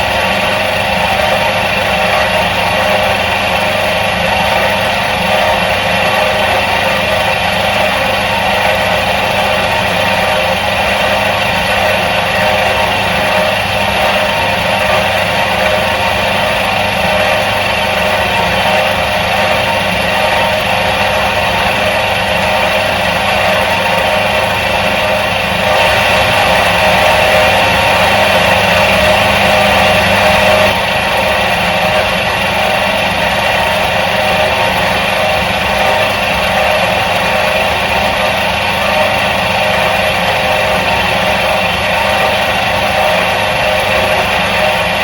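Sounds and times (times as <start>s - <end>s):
washing machine motor humming: 0.0s - 45.0s.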